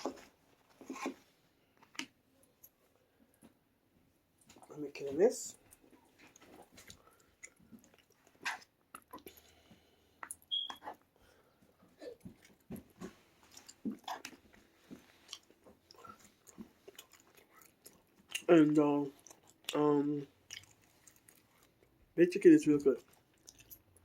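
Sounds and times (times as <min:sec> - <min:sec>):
person chewing food: 0:05.6 - 0:22.0, 0:23.0 - 0:24.0.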